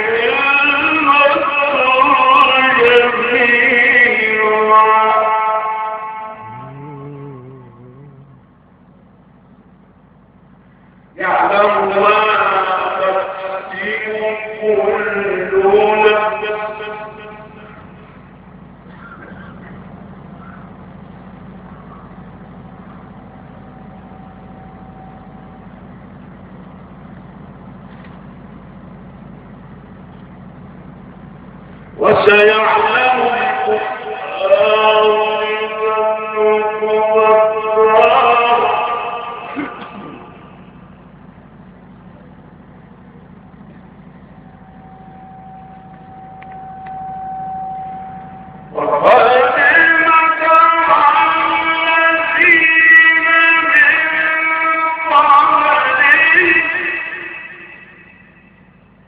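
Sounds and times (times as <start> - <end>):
low mechanical hum: 0.0 - 59.0
faint thin tone: 22.8 - 25.9, 44.3 - 48.8.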